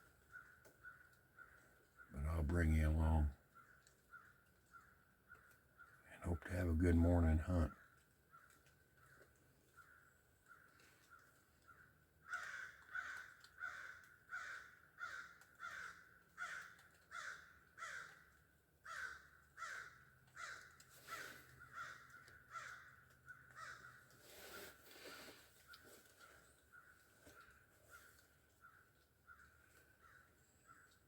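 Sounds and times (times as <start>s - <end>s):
crows cawing: 0.3s - 2.1s, 3.5s - 6.0s, 9.8s - 24.1s, 26.7s - 31.0s.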